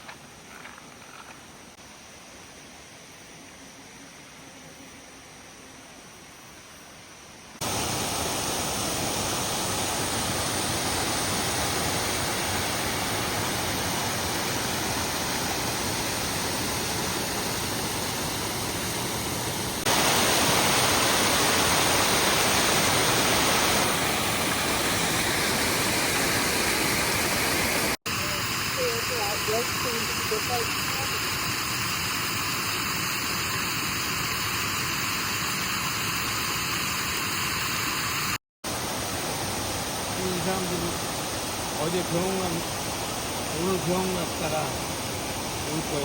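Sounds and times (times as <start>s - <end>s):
stream rushing over rocks: 19.9s - 28.5s.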